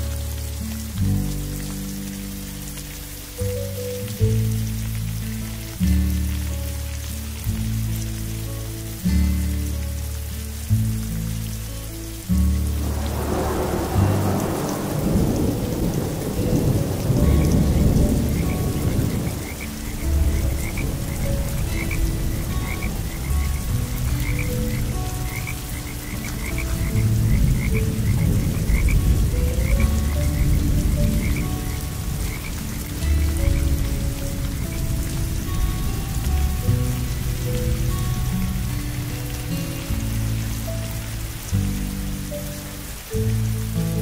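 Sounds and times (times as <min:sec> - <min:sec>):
steady rain: 0:00.0 - 0:44.0
thunder rumbling: 0:12.2 - 0:38.8
frogs croaking: 0:12.8 - 0:36.2.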